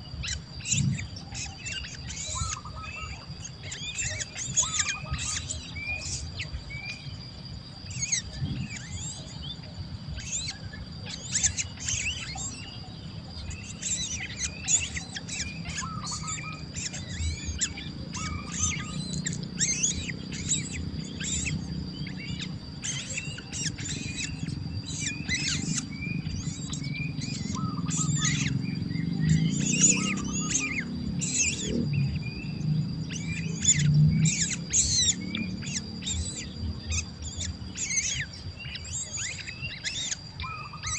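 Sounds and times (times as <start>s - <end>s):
baby birds chirping: 0.0s - 40.9s
steady high-pitched tone: 2.2s - 37.2s
low rumble: 8.3s - 8.8s.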